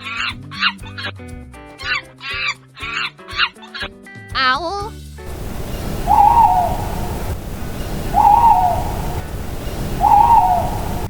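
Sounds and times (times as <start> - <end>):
low rushing background: 5.3 - 11.0
owl hooting: 5.3 - 11.0.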